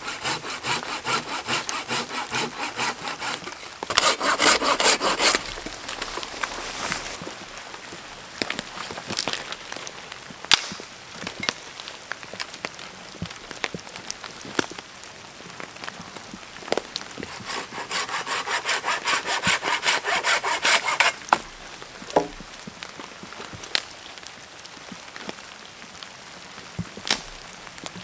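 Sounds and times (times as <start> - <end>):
hand saw cutting wood: 0.0 - 7.3, 17.2 - 22.4.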